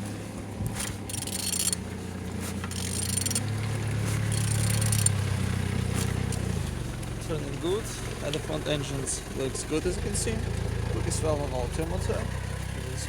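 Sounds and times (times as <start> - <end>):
wrench ratcheting engine over: 0.7 - 6.6.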